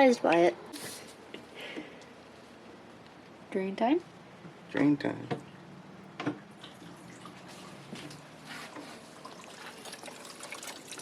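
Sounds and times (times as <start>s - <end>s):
faucet water trickling into sink: 6.6s - 11.0s.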